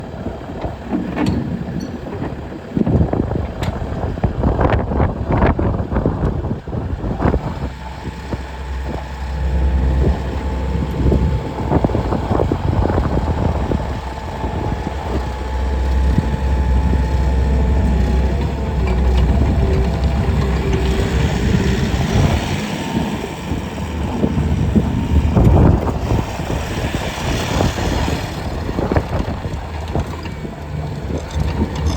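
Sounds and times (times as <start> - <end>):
diesel engine rumbling: 0.0 - 31.9
metal clanks and knocks: 0.9 - 2.5.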